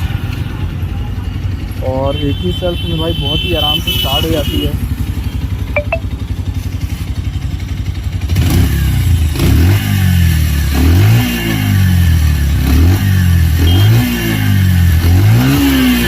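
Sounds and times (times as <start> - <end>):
motorcycle engine revving: 4.2 - 16.0.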